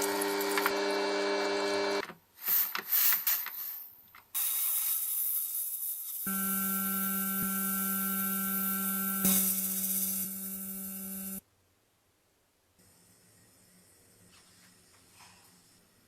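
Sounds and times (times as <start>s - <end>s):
electric hum: 6.3s - 11.4s.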